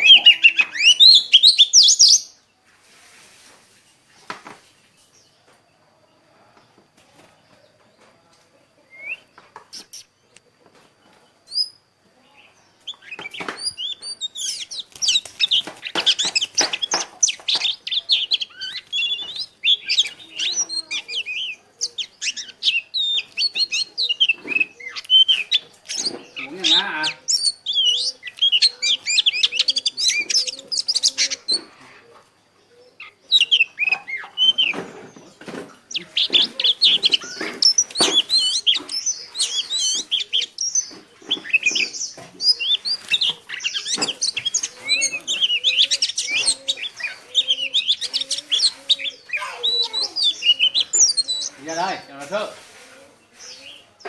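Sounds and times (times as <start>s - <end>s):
white-eyes twittering warble: 35.8s - 52.0s.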